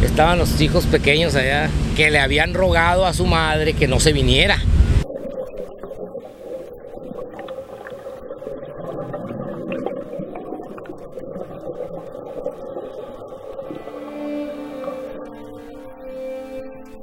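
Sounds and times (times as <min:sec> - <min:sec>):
low underwater hum: 0:00.0 - 0:16.1
gurgling water: 0:02.6 - 0:15.9.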